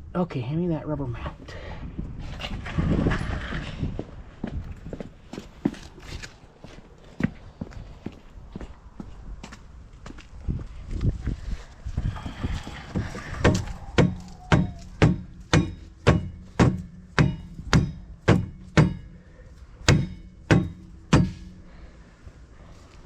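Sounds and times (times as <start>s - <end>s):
mallet striking metal: 13.4s - 19.2s, 19.8s - 21.6s.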